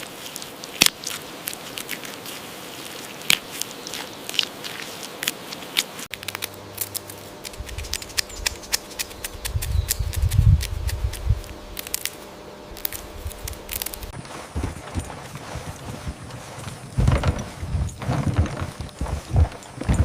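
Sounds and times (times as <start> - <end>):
sharp clicks and snips: 5.2 - 12.2.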